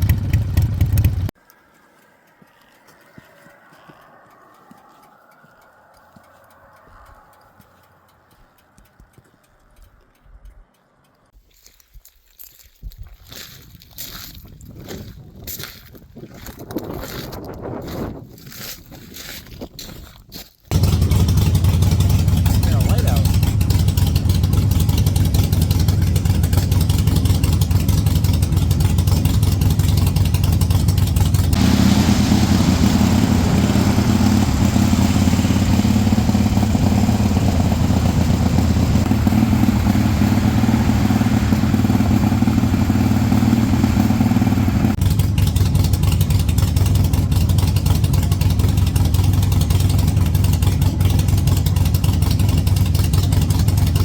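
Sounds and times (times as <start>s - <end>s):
motorcycle engine running: 0.0s - 1.4s, 20.7s - 54.0s
rushing hiss: 31.6s - 37.7s.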